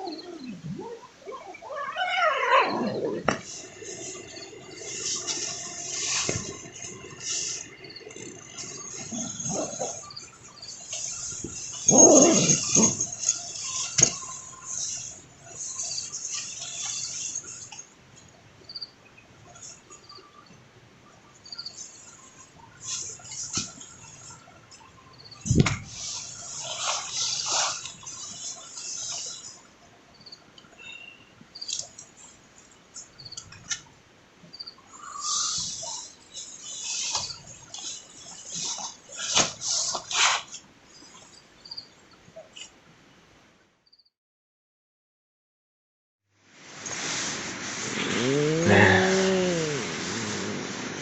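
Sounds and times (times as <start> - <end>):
animal calls: 0.0 - 17.6, 47.8 - 51.0
high insect chorus: 3.3 - 17.7.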